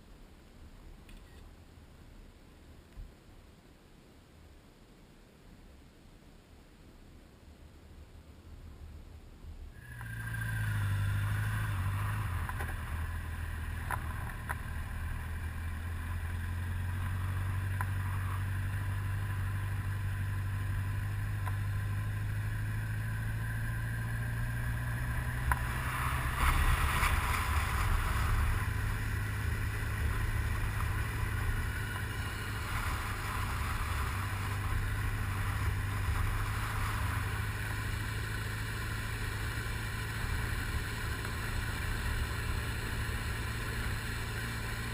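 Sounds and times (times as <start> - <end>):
wind and road noise: 0.0 - 44.9
motorcycle engine cruising: 9.8 - 44.9.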